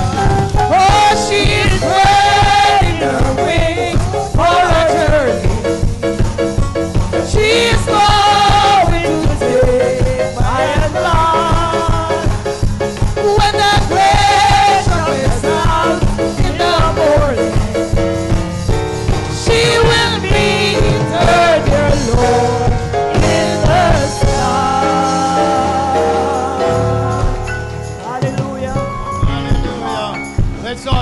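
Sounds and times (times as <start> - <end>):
bass and drum beat: 0.0 - 31.0
choir singing gospel: 0.0 - 31.0.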